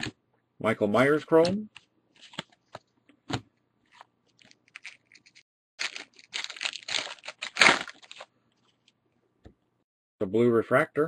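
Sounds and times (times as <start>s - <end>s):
cards clicking and rustling: 1.4s - 8.3s
foil wrapper tearing and crinkling: 3.9s - 8.3s.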